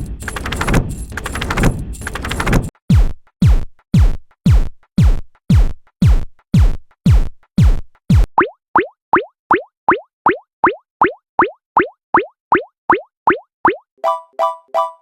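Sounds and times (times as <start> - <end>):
noisy electronic rattling: 0.0 - 2.7.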